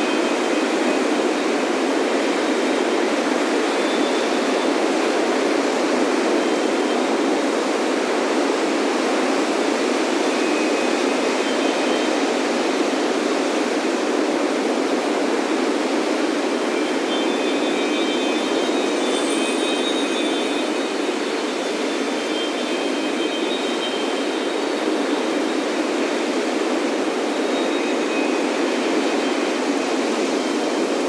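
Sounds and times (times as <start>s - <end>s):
faint wind chime tones: 16.7s - 26.0s.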